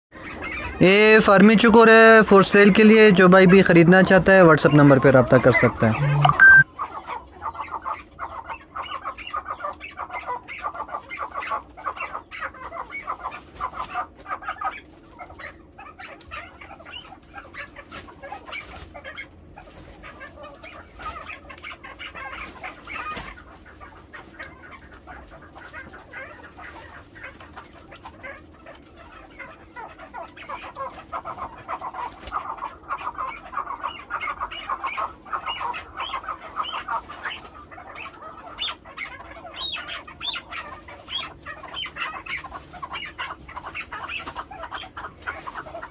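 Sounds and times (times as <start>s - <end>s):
partridges calling: 29.1s - 45.9s.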